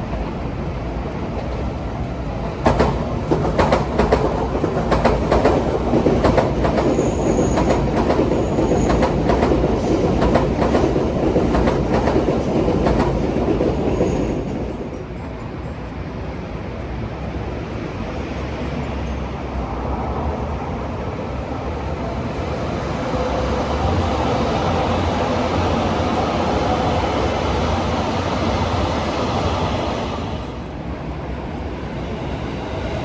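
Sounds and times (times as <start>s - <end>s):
train rumble: 0.0s - 33.0s
train wheels clicking over rail joints: 0.0s - 33.0s
faint high squeal: 6.9s - 7.8s.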